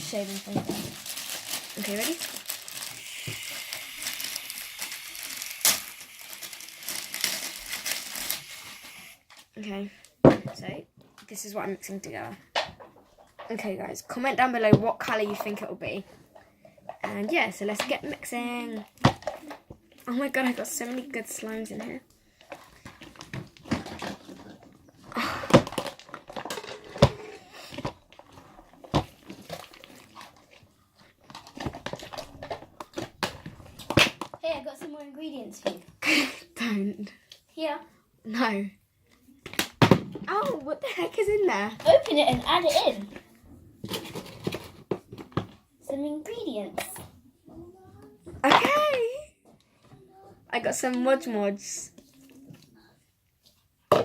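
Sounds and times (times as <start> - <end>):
slime squelching and crinkling: 0.0 - 9.6, 25.7 - 34.2
crinkly handling sounds: 0.0 - 11.4, 15.1 - 35.8, 39.0 - 47.2
aerosol can hissing: 3.0 - 6.8, 8.2 - 9.2.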